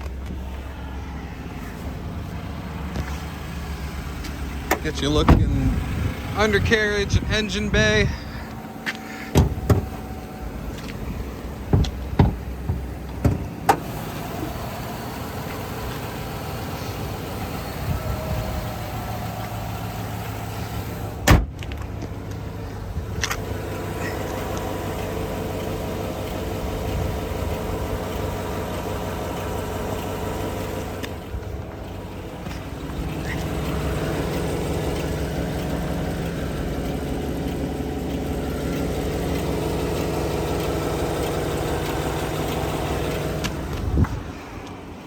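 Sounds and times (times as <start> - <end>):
pickup truck idling: 0.0 - 45.0
knocks and clicks: 11.7 - 13.8.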